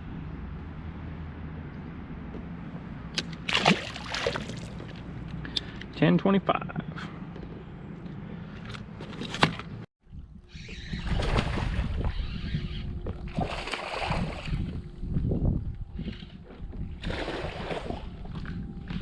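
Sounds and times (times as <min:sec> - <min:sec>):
wind and water rushing: 0:03.2 - 0:05.3, 0:13.2 - 0:15.4, 0:17.0 - 0:18.6.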